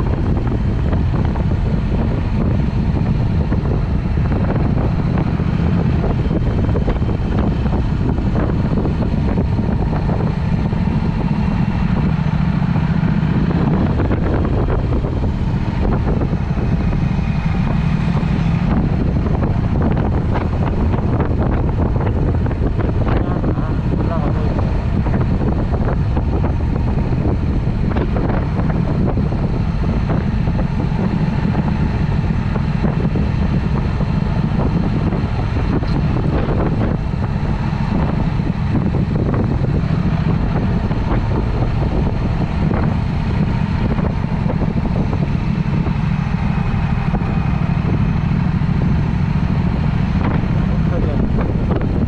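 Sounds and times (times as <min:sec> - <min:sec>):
motorcycle engine running: 0:00.0 - 0:52.0
wind rushing over microphone: 0:00.0 - 0:52.0.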